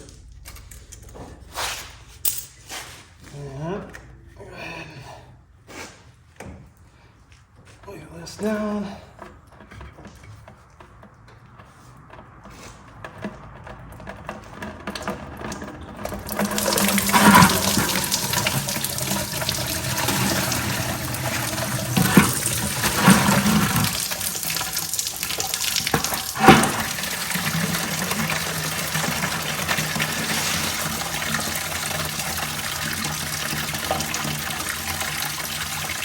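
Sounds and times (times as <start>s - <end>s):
water pouring into container: 15.5s - 36.0s.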